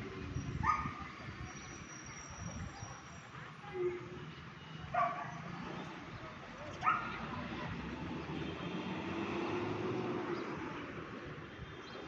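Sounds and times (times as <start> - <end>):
dog barking: 0.6 - 1.0, 4.9 - 5.4, 6.8 - 7.2.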